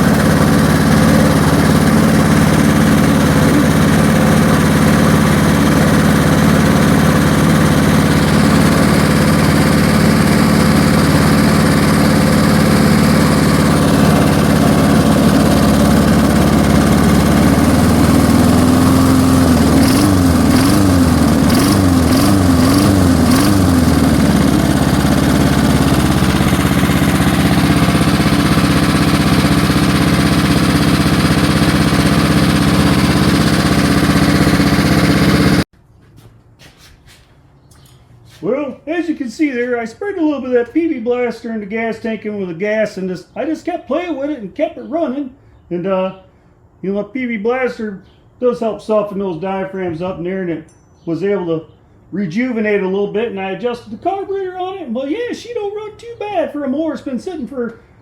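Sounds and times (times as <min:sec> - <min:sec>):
push mower engine running: 0:00.0 - 0:35.7.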